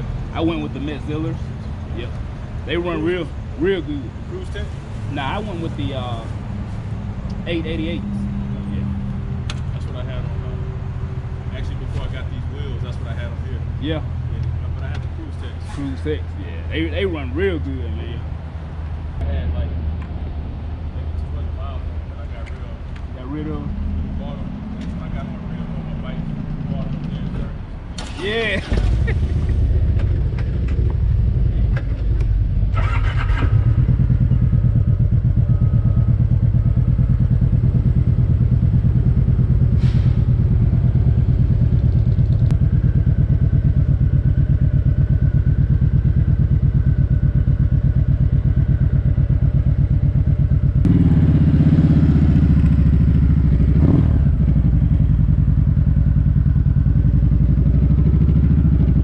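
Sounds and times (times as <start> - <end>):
motorcycle engine idling: 28.4 - 59.0.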